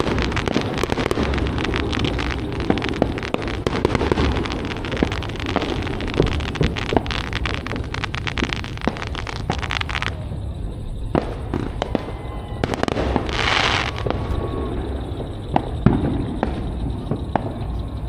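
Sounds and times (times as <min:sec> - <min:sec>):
firecracker pops: 0:00.0 - 0:10.2
firework hiss: 0:00.0 - 0:17.4
firework bangs: 0:00.0 - 0:18.0.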